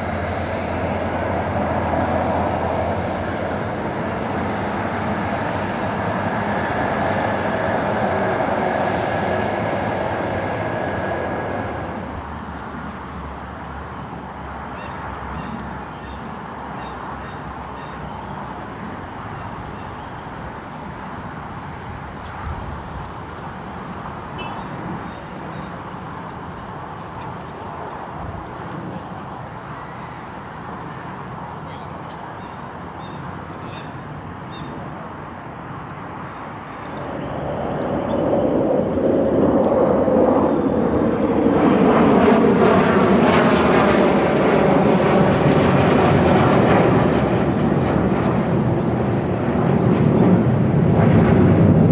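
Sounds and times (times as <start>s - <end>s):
distant jet aircraft rumble: 0.0s - 51.9s
outdoor background noise: 0.0s - 51.9s.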